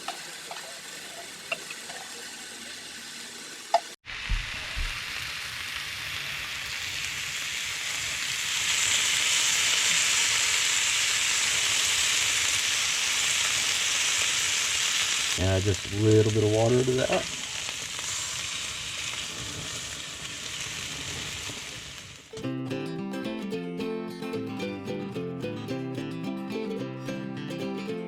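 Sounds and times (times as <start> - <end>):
food sizzling in a skillet: 0.0 - 22.4.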